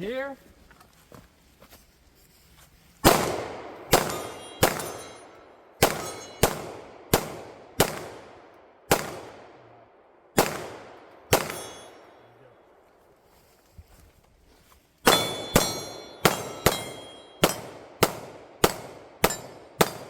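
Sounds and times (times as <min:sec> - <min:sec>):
gunshots with ringing decay: 0:03.0 - 0:12.8, 0:15.0 - 0:20.0.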